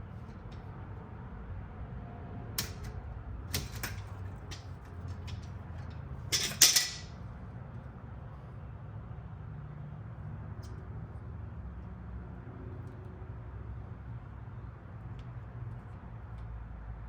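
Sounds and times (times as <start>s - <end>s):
metal hand tools clinking: 6.3s - 7.2s.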